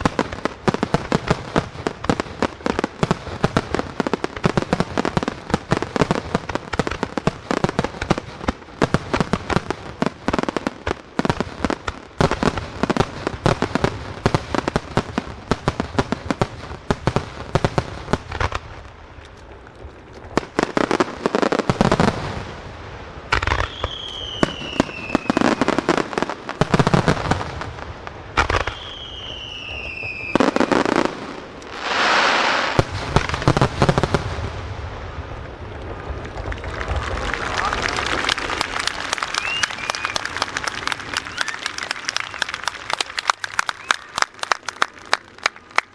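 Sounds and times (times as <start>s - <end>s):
firework bangs: 0.0s - 45.9s
fireworks bursts and crackles: 0.0s - 45.9s
falling whistles: 23.6s - 25.5s, 28.6s - 30.4s, 39.3s - 40.3s, 41.2s - 42.6s
rushing hiss: 31.6s - 34.1s.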